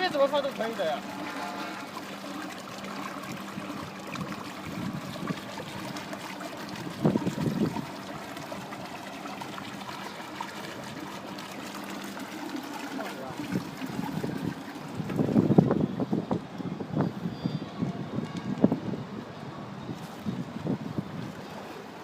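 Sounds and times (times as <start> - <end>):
water running and trickling: 0.0 - 16.6
low steady hum: 0.5 - 16.9.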